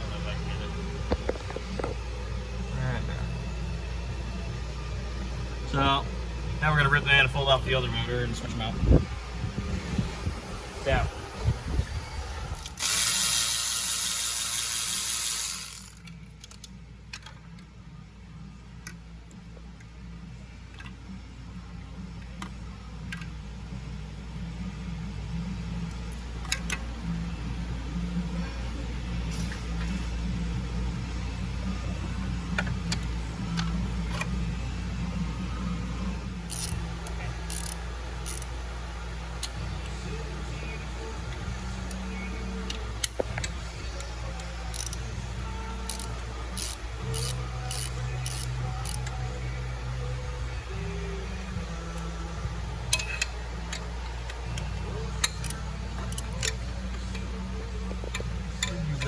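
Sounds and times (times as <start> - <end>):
low mechanical hum: 0.0 - 59.0
hand tools clicking and tapping: 41.8 - 45.1, 52.9 - 57.4, 58.0 - 59.0.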